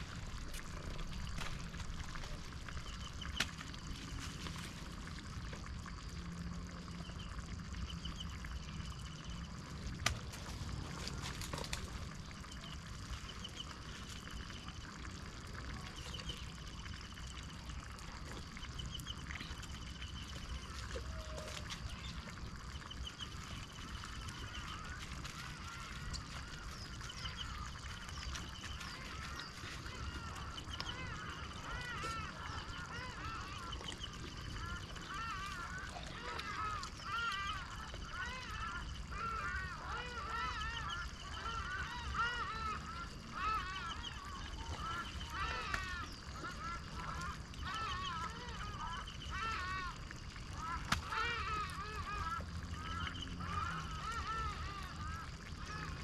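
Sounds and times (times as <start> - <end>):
hiss of water or rain: 0.0 - 2.8
animal trills: 0.0 - 56.0
chorus of animal calls: 0.0 - 56.0.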